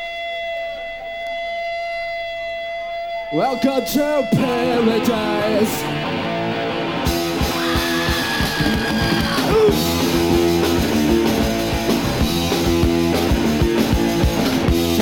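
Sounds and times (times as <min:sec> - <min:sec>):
punk rock band playing: 0:03.9 - 0:15.0.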